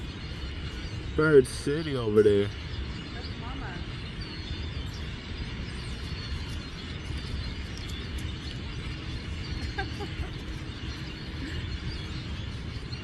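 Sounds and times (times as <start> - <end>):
flock of birds chirping: 0.0 - 13.0.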